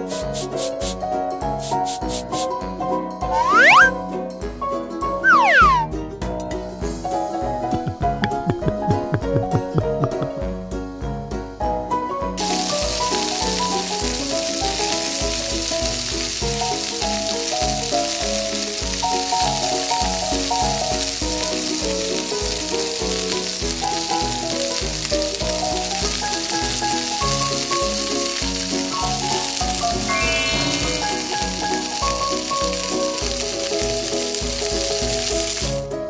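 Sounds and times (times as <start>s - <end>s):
light background music: 0.0s - 36.0s
oil sizzling in frying pan: 12.4s - 36.0s.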